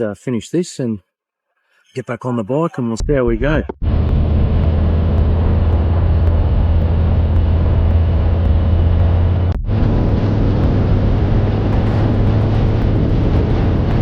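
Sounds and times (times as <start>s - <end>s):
motorcycle engine drone: 3.8s - 14.0s
wind and road noise: 3.8s - 14.0s.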